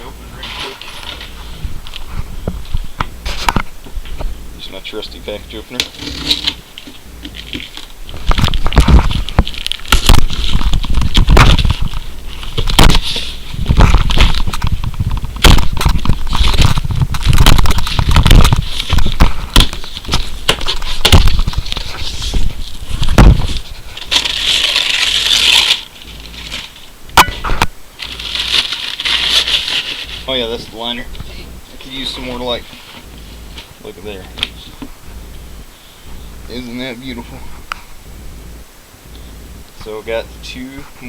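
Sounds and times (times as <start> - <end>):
packaging tearing and crinkling: 7.4 - 26.9, 27.6 - 30.3.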